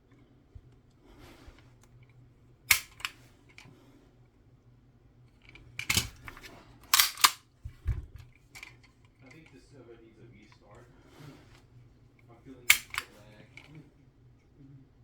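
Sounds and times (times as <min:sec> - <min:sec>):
pistol action clicks and snaps: 0:02.7 - 0:03.2, 0:05.5 - 0:07.4, 0:12.7 - 0:13.7.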